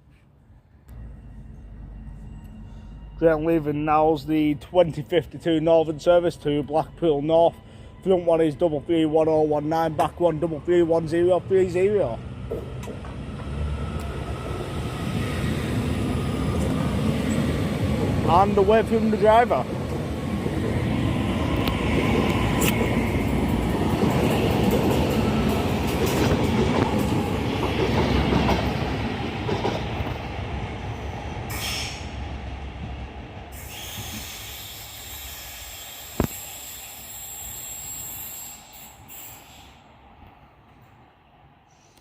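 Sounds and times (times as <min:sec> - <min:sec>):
electric train departing: 0:00.5 - 0:42.0
wheels rumbling over rails: 0:09.8 - 0:34.2.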